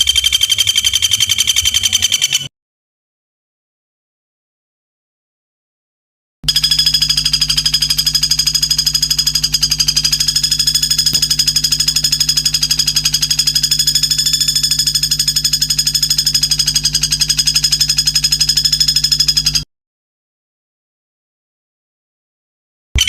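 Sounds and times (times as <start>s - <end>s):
high-pitched pulsing bird trill: 0.0s - 2.5s, 6.5s - 19.6s.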